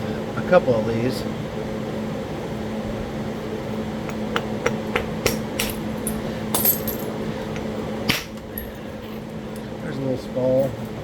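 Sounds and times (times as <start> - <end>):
room fan humming: 0.0 - 11.0
stone striking stone: 4.1 - 5.8.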